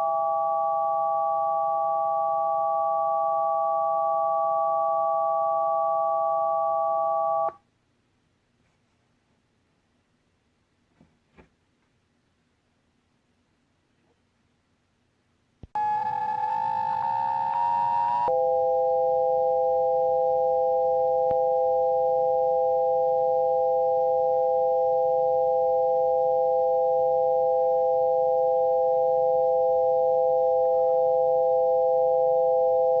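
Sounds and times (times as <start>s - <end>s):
synthesized sine tones: 0.0s - 7.6s, 15.8s - 33.0s.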